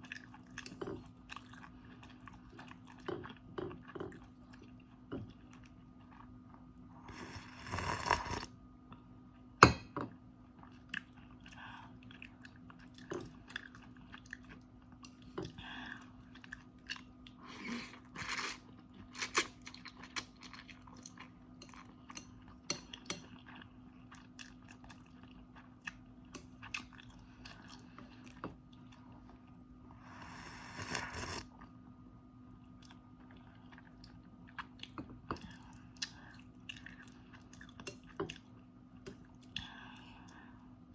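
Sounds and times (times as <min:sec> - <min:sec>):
chewing and crunching noodles: 0:00.0 - 0:09.5, 0:10.4 - 0:29.6, 0:32.6 - 0:40.4
faint steady hum: 0:00.0 - 0:40.9.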